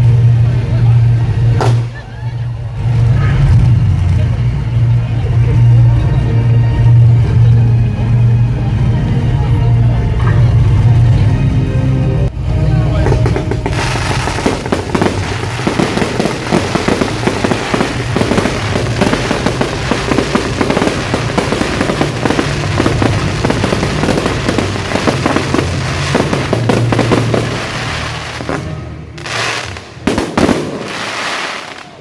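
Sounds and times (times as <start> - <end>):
fireworks bangs and crackles: 0.0 - 4.8, 13.0 - 32.0
music: 0.0 - 32.0.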